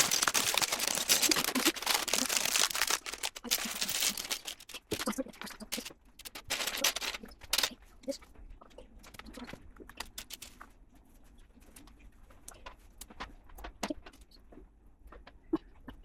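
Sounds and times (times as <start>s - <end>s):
plastic bricks clicking: 0.0s - 7.8s, 10.0s - 10.6s.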